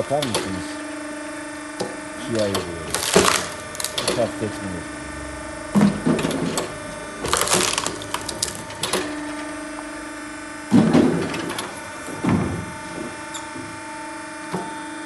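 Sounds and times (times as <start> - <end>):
log splitter humming: 0.0 - 15.0
logs cracking and splitting: 2.9 - 4.3, 5.4 - 9.3.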